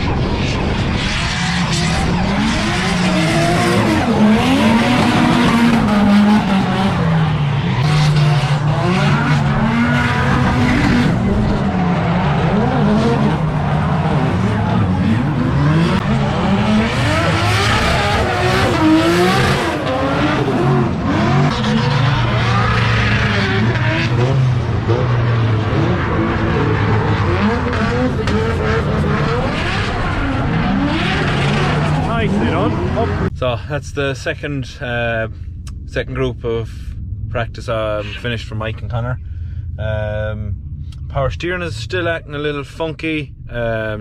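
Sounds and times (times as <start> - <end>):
tyres skidding and squealing: 0.0 - 33.3
car engine revving: 0.0 - 44.0.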